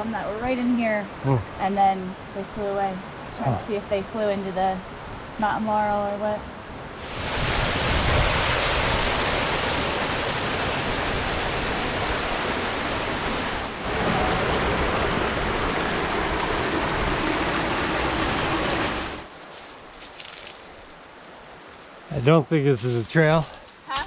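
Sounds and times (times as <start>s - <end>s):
waterfall rushing: 7.0s - 19.3s.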